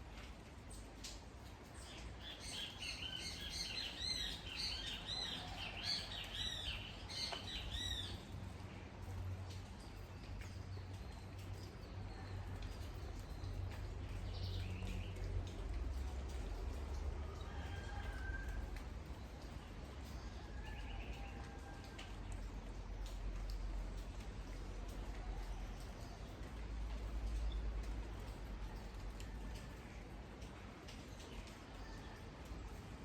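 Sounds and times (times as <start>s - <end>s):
rainfall: 0.0s - 33.0s
songbird chirping: 1.9s - 8.3s.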